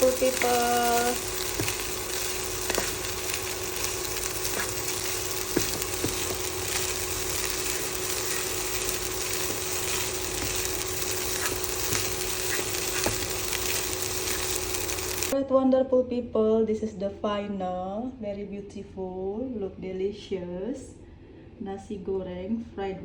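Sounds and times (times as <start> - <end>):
oil sizzling in a pan: 0.0 - 15.4.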